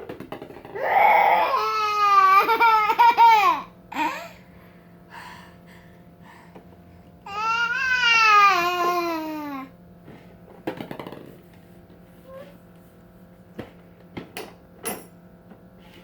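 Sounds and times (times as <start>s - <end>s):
baby crying high-pitched: 0.8s - 3.7s, 7.3s - 9.7s.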